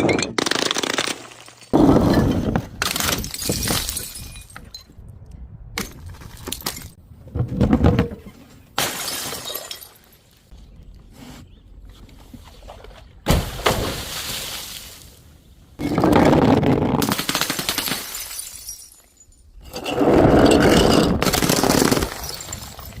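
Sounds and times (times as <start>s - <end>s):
glass bottles shattering: 1.2s - 4.9s, 8.8s - 10.2s, 17.8s - 23.0s.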